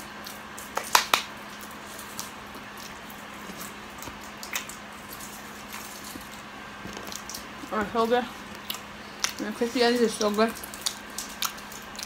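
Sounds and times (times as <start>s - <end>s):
close-up chewing: 0.2s - 12.0s
wet mouth clicks: 8.6s - 9.4s.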